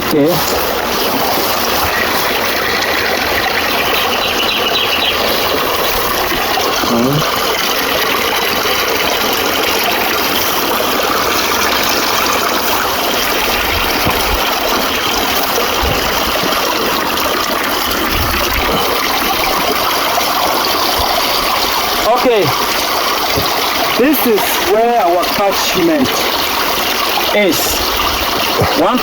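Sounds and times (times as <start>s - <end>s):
stream water rushing: 0.0s - 29.0s.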